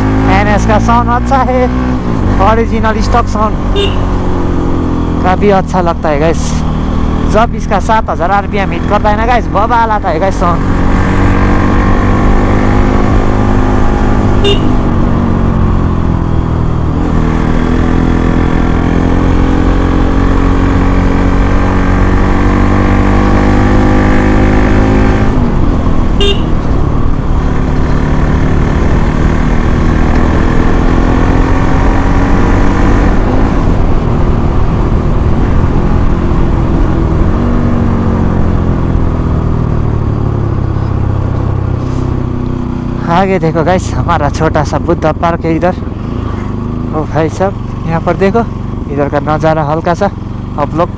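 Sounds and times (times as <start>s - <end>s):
motorcycle engine accelerating: 0.0s - 50.9s
horn toots: 3.7s - 4.2s, 14.4s - 15.0s, 26.2s - 26.8s.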